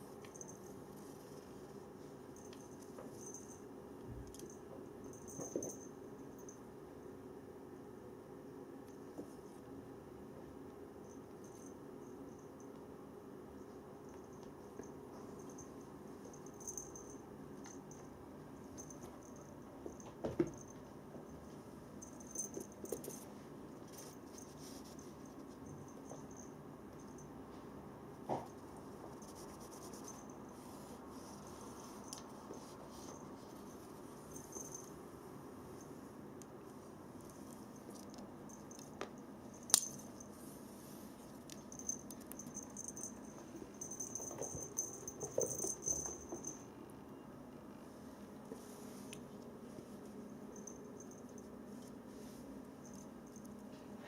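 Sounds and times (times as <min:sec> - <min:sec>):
toy rattle jingling: 0:41.7 - 0:46.6.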